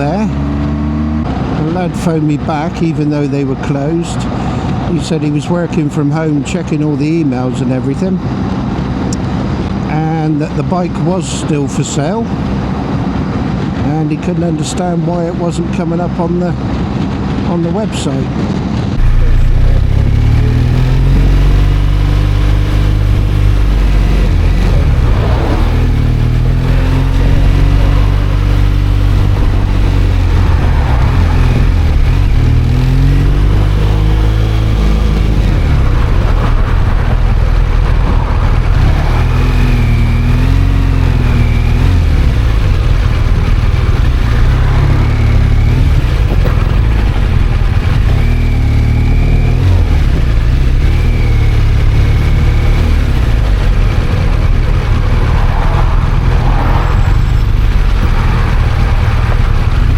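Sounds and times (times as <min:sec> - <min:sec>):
motorcycle engine: 0:00.0 - 0:05.5, 0:16.6 - 0:59.9
wind rumble on microphone: 0:18.2 - 0:59.9.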